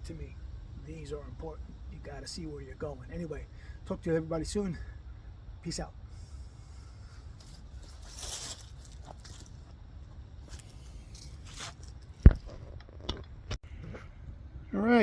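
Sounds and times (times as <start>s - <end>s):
low steady rumble: 0.0s - 15.0s
rustling and handling noise: 7.2s - 13.3s.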